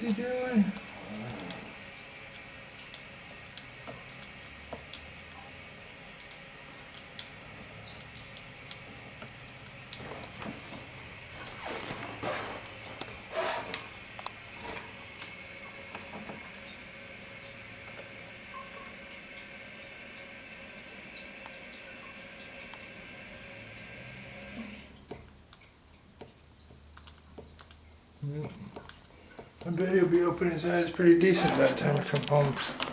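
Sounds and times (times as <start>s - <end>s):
steady rushing hiss: 10.0s - 14.5s.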